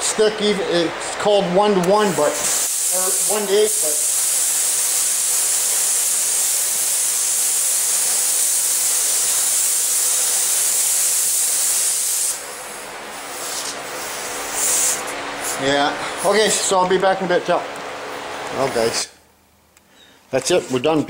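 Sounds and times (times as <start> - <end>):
spray gun hissing: 2.0 - 16.7.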